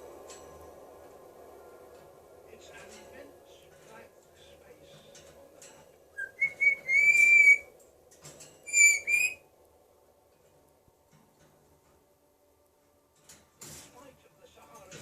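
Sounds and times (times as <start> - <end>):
parrot whistling: 6.2 - 7.7, 8.7 - 9.4.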